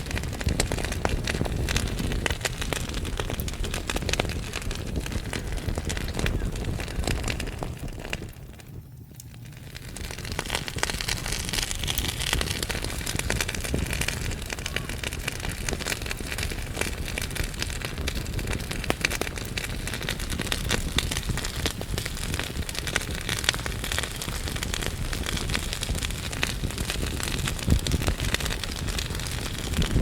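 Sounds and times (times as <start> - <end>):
logs crackling and popping: 0.0 - 30.0
low rumble of flame: 0.0 - 30.0.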